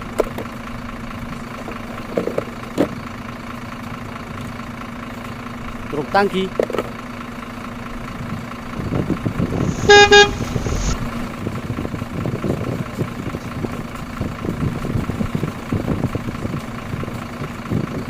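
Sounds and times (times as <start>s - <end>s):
irregular low rumbling: 8.7s - 12.1s
steady low hum: 8.9s - 11.4s
vehicle horn honking: 9.6s - 11.0s.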